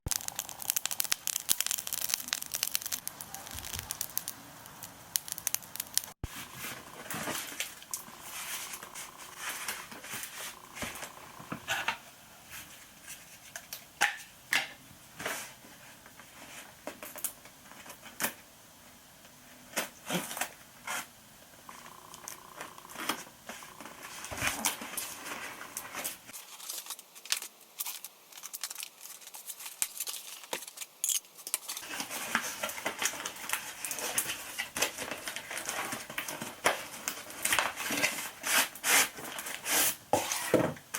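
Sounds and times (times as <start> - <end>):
packaging crinkling and tearing: 0.1 - 6.2, 26.3 - 39.9
sharp clicks and snips: 0.1 - 6.2.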